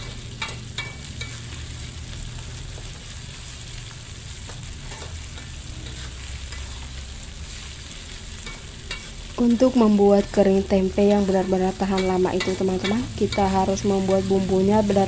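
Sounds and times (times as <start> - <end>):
metal spatula scraping a wok: 0.0 - 1.9, 4.7 - 9.4
paste sizzling in hot oil: 0.0 - 15.0.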